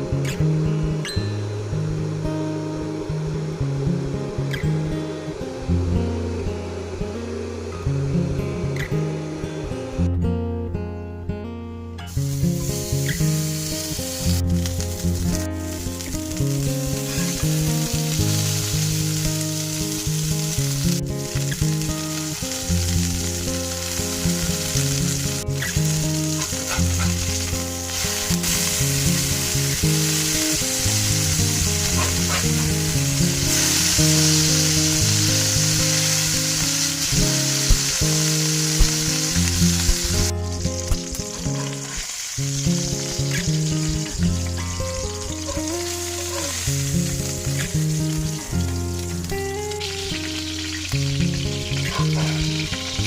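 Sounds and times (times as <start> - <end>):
food sizzling in a pan: 12.0 - 53.0.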